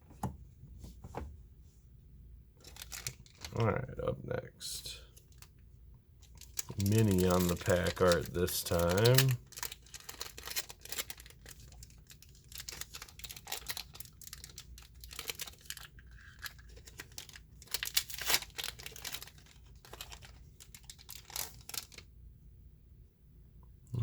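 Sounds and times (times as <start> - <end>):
foil wrapper crinkling and tearing: 2.6 - 3.5, 6.2 - 22.1.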